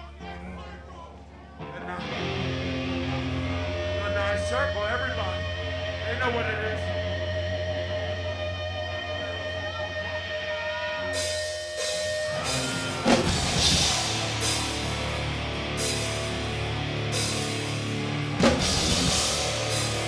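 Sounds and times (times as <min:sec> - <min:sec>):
ringing guitar notes: 0:01.6 - 0:20.0
punk band playing live: 0:02.0 - 0:20.0
cymbals: 0:11.2 - 0:20.0.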